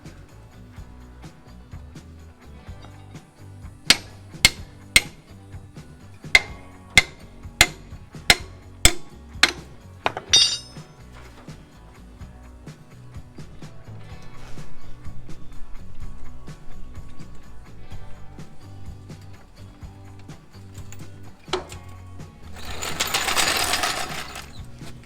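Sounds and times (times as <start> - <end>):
background music: 0.0 - 25.0
metallic rattle: 2.7 - 25.0
hammer striking metal: 3.9 - 5.4, 6.1 - 11.0.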